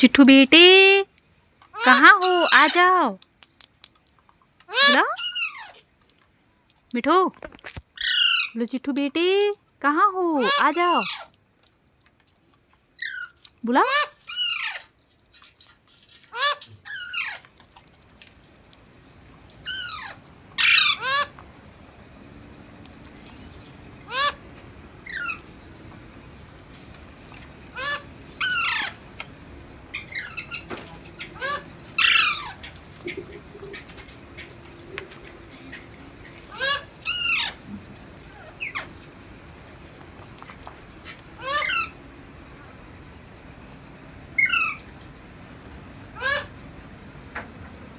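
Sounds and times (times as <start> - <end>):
parrot squawking: 1.8 - 3.0, 4.7 - 5.8, 8.0 - 8.6, 10.4 - 11.3, 13.0 - 14.9, 16.0 - 17.4, 19.6 - 21.3, 24.1 - 24.4, 25.0 - 25.4, 27.7 - 29.0, 29.9 - 37.7, 38.3 - 38.9, 41.4 - 42.0, 46.2 - 46.5.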